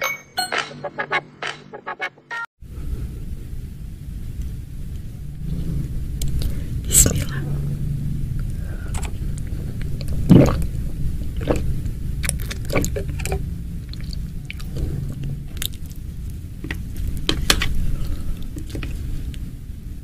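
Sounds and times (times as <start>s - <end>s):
steady low hum: 2.6s - 20.0s
chewing and biting food: 9.4s - 19.1s.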